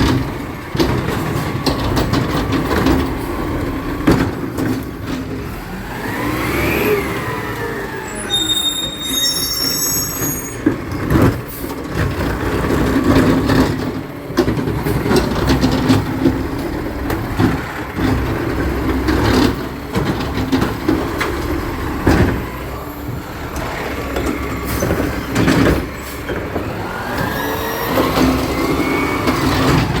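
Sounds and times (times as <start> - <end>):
metal clanks and bangs: 0.0 - 5.5, 10.6 - 27.3
truck engine humming: 0.0 - 30.0
high squeal: 7.9 - 10.7.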